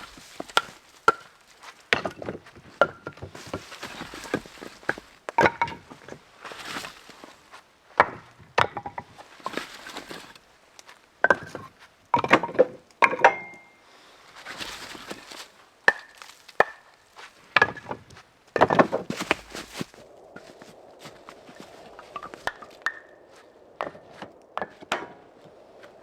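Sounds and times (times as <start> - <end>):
rustling: 0.0 - 7.6, 9.0 - 11.7, 13.9 - 23.5
firewood logs knocking together: 0.0 - 13.7, 14.4 - 21.2, 21.9 - 23.1, 23.8 - 25.5.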